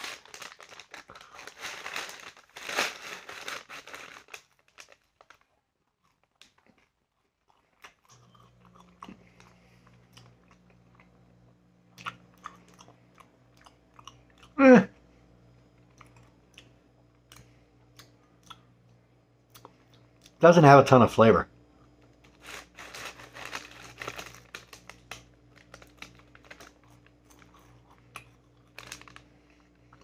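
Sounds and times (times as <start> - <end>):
paper bag crinkling: 0.0 - 5.5, 22.3 - 27.7, 28.6 - 29.3
low steady hum: 0.0 - 30.0.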